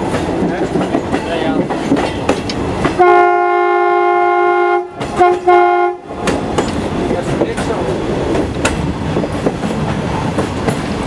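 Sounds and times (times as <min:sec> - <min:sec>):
train rumbling clatter: 0:00.0 - 0:03.6, 0:04.8 - 0:11.0
voices: 0:00.4 - 0:02.0, 0:07.0 - 0:08.2
train horn blast: 0:03.0 - 0:06.1.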